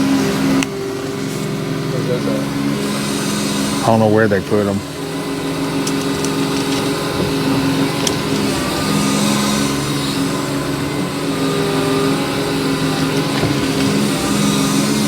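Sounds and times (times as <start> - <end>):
heavy equipment engine running: 0.0 - 15.0.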